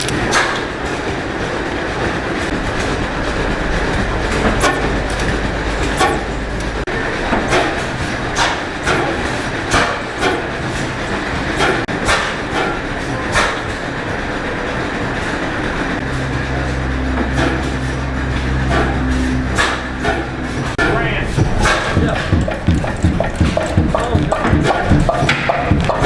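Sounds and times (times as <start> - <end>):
engine rumbling with clacks: 0.0 - 26.0
deep low hum: 2.5 - 7.5, 15.6 - 26.0.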